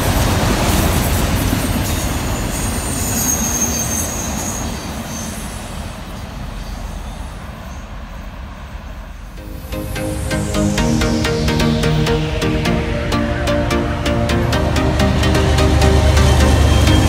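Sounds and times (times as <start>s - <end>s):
train wheels rumbling on rails: 0.0s - 9.4s
steel wheel squeal: 1.8s - 5.8s.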